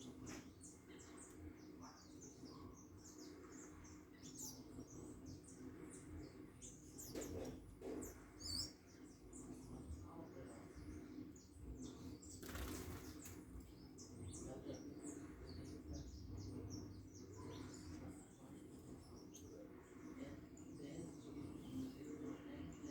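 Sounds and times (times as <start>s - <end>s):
small birds chirping: 0.0s - 22.9s
bird wingbeats: 12.2s - 13.6s.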